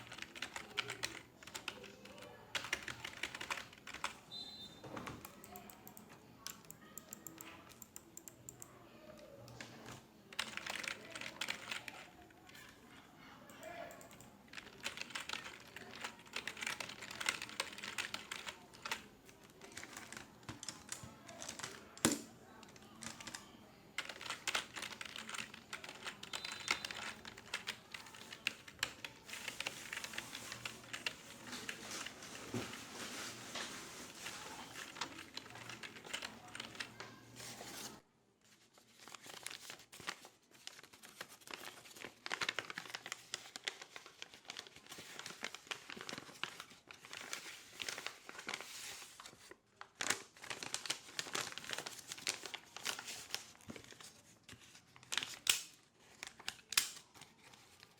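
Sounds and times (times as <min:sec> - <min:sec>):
keyboard typing: 0:00.0 - 0:04.2, 0:05.0 - 0:08.8, 0:09.4 - 0:12.6, 0:13.5 - 0:32.2, 0:34.5 - 0:37.2
paper rustling: 0:26.0 - 0:57.9.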